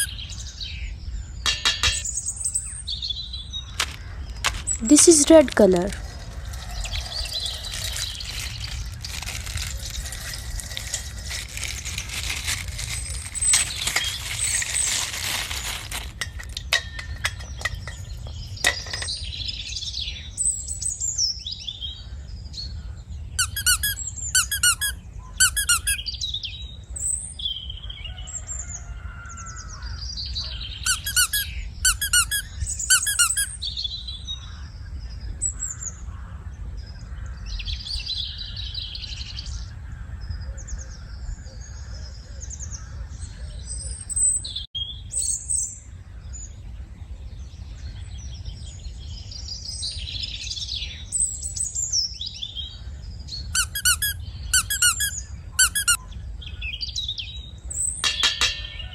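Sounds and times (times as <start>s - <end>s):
birds chirping: 0.0s - 28.2s, 28.8s - 39.7s, 47.8s - 58.9s
plastic crinkling: 3.8s - 17.9s.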